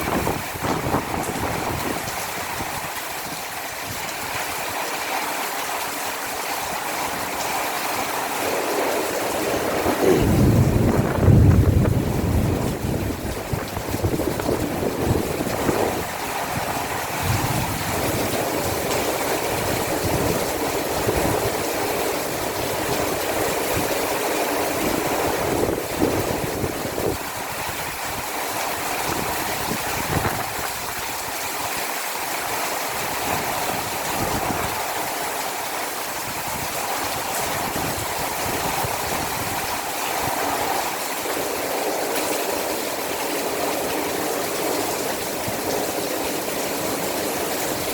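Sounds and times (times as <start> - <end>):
heavy rain pouring: 0.0 - 47.9
low gusty rumbling: 8.3 - 18.8.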